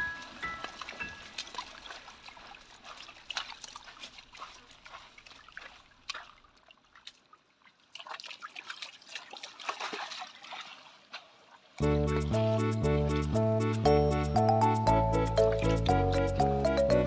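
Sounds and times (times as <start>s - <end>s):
dog splashing in water: 0.0s - 11.8s
water trickling: 0.0s - 13.5s.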